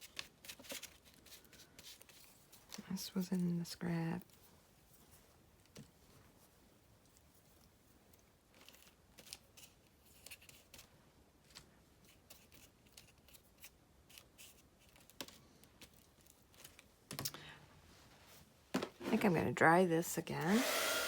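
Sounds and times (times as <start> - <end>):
paper rustling: 0.0 - 2.9.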